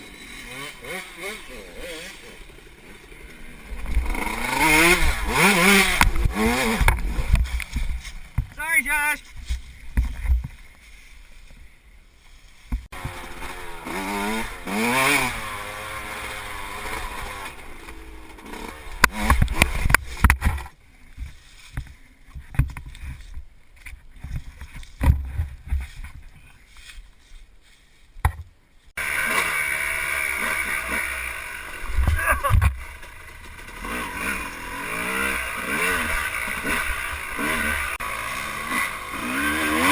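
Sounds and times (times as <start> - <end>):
dirt bike engine revving: 0.0 - 8.2, 12.9 - 20.7, 29.0 - 39.9
sharp knocks and heavy thumps: 5.9 - 8.6, 9.3 - 10.7, 19.0 - 26.3.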